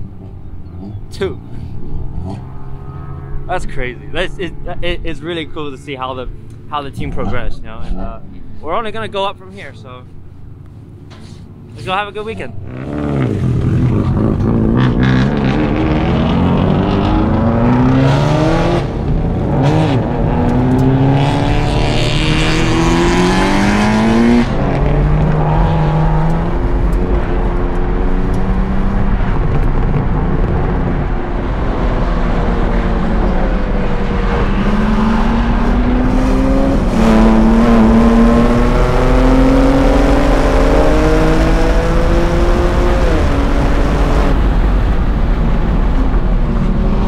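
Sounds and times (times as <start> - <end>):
car engine accelerating hard: 11.9 - 47.0.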